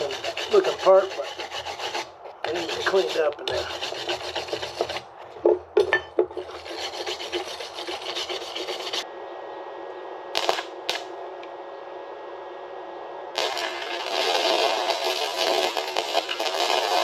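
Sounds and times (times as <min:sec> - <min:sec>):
scrubbing scrapes on steel: 0:00.0 - 0:05.4, 0:06.0 - 0:09.0.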